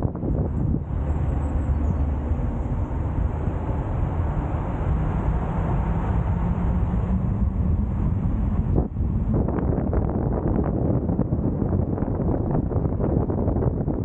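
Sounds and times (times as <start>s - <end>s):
car road and engine noise: 0.0s - 14.0s
wind on microphone: 0.0s - 14.0s.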